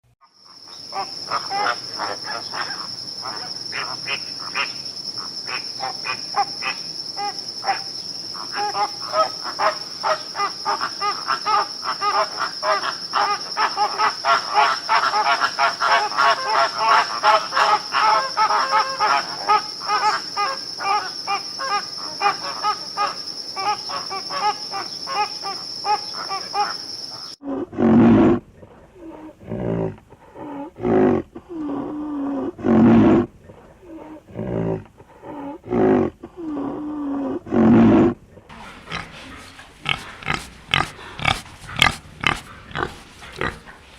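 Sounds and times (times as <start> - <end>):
insects whining and chirping: 0.2 - 27.4, 28.3 - 43.9
big cat roaring: 27.4 - 43.9.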